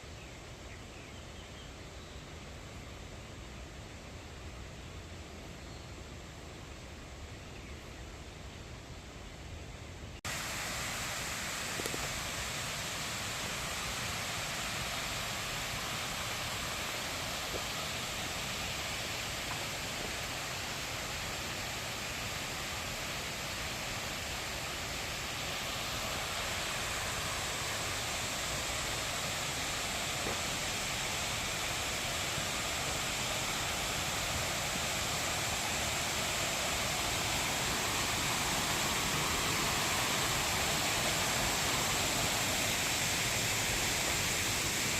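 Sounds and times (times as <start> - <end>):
stream rushing over rocks: 10.3 - 44.9.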